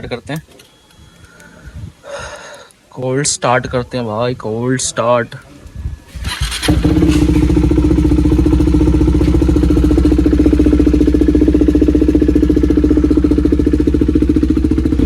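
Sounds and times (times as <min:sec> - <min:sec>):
motorcycle engine idling: 0:06.3 - 0:15.0.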